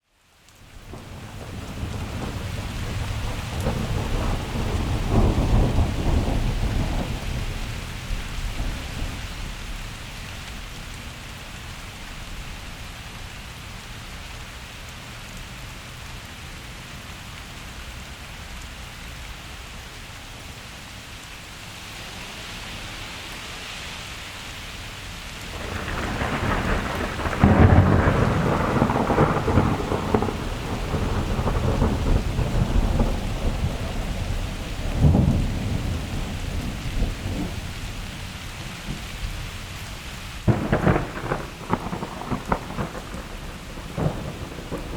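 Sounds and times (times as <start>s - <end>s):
steady rain: 0.0s - 44.9s
thunder rumbling: 0.8s - 11.2s, 25.4s - 44.9s.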